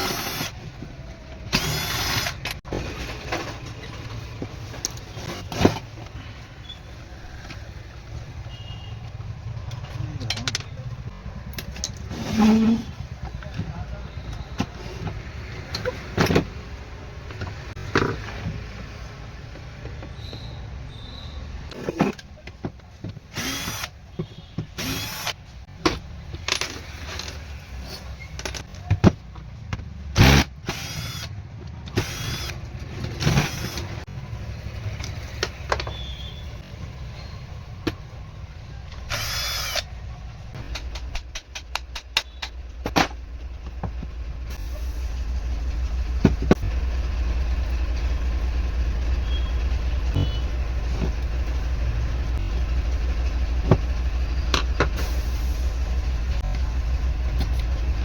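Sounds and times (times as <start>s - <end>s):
power tool running: 1.5s - 2.5s, 23.4s - 23.9s, 24.8s - 25.3s, 30.2s - 31.3s, 32.0s - 32.6s, 33.2s - 34.0s, 39.1s - 39.9s
steady low rumble: 40.0s - 58.0s.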